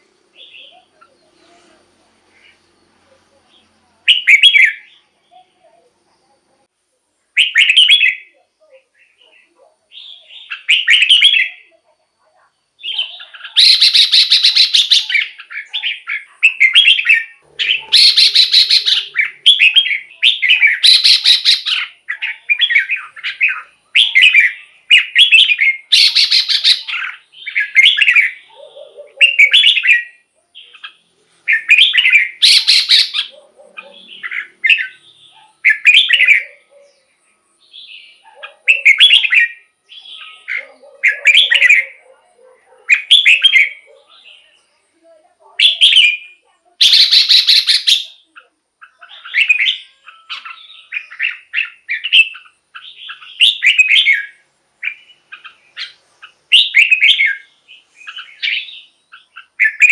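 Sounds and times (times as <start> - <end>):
bird whistled phrases: 4.1 - 4.9, 7.4 - 8.4, 9.2 - 11.7, 12.8 - 36.7, 37.8 - 42.0, 45.6 - 59.9.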